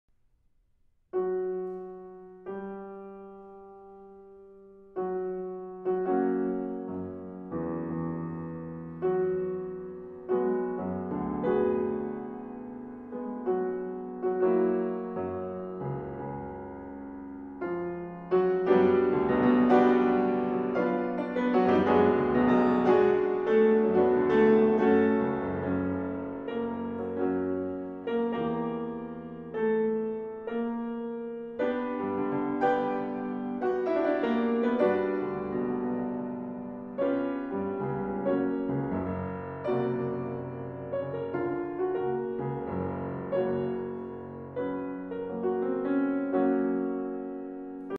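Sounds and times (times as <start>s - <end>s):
gentle keyboard melody: 1.2s - 47.9s.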